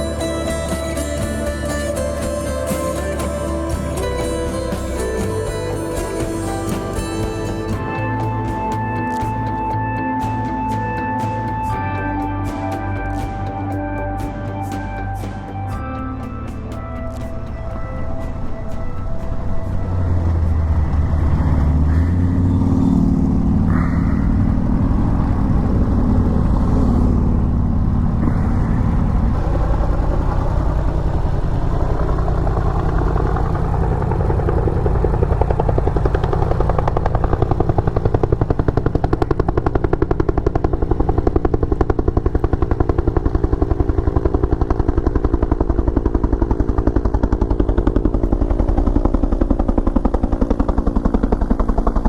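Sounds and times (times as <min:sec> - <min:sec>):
helicopter rotor chopping: 0:00.0 - 0:09.9, 0:16.6 - 0:52.0
motorcycle engine idling: 0:16.3 - 0:52.0.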